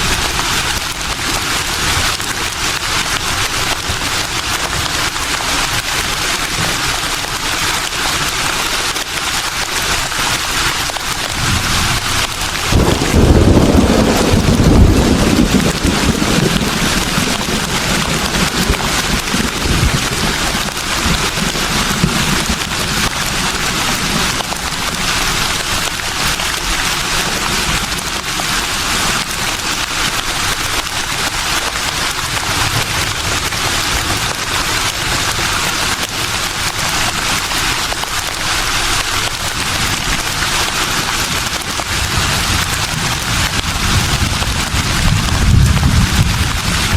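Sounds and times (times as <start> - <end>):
wind rustling through leaves: 0.0 - 46.9
low gusts of wind: 11.1 - 30.0, 38.9 - 46.9.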